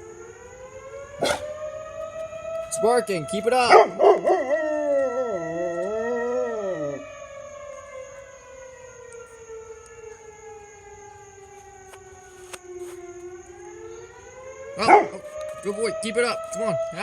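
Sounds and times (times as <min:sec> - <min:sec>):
fire engine siren wailing: 0:00.0 - 0:17.0
dog howling: 0:01.2 - 0:01.6, 0:03.5 - 0:07.1, 0:14.8 - 0:15.2.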